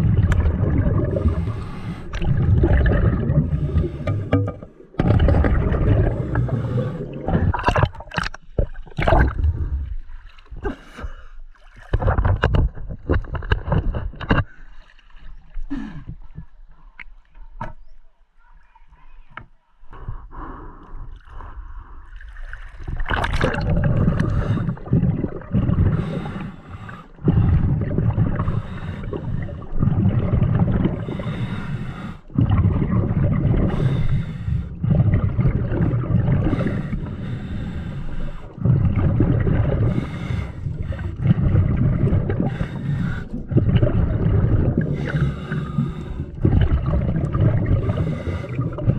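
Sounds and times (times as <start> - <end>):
gurgling exhaust bubbles: 0.0 - 10.0, 22.9 - 48.9
diver inhaling through regulator: 1.0 - 2.4, 3.1 - 4.9, 5.7 - 7.6, 24.0 - 25.0, 25.7 - 29.9, 30.8 - 32.4, 33.4 - 35.2, 36.3 - 38.8, 39.6 - 47.0, 47.6 - 48.9.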